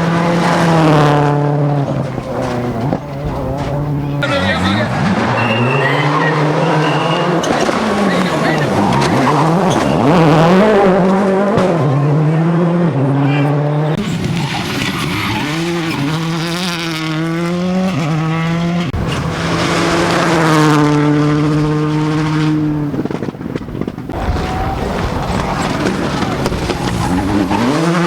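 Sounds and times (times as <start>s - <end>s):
race car engines revving: 0.0s - 28.0s.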